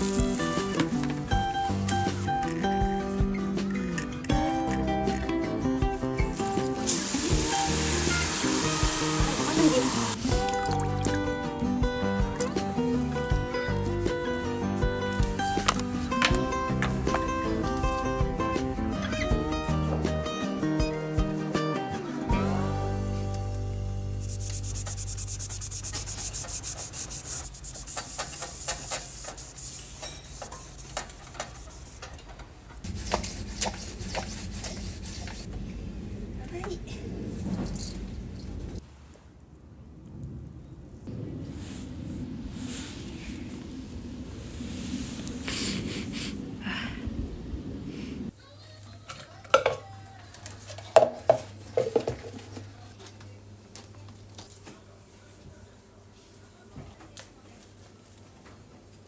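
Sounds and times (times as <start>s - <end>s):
rhythmic scrubbing strokes: 0.0s - 23.0s, 23.9s - 32.1s.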